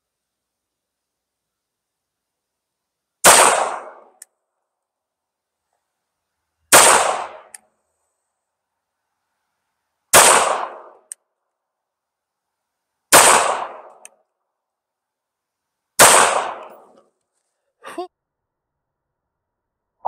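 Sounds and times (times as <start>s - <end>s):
pistol shots: 3.2s - 4.2s, 6.7s - 7.5s, 10.1s - 11.1s, 13.1s - 14.0s, 16.0s - 16.9s.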